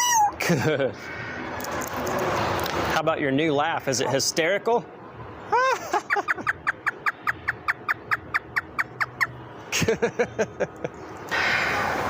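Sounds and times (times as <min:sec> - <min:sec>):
parrot imitating laughter: 0:05.5 - 0:09.3.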